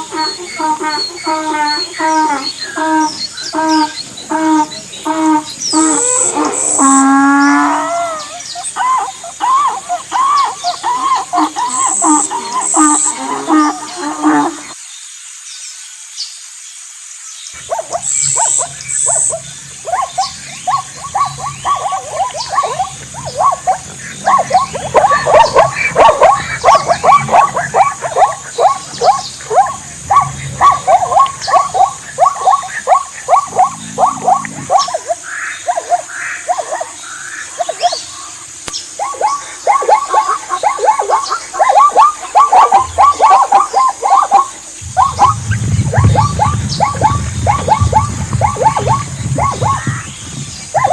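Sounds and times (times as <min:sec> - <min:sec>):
animal yelping high-pitched: 0:07.7 - 0:14.7, 0:17.7 - 0:37.0, 0:39.0 - 0:50.0.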